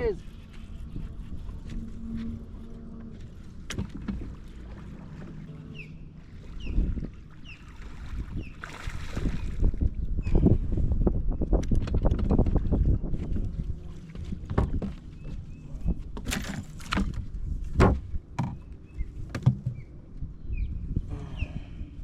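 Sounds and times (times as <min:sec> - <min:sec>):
knocks and rattles against boat: 0:03.0 - 0:05.5, 0:10.3 - 0:20.0
bird chirping: 0:05.7 - 0:06.8
water splash: 0:07.4 - 0:09.7.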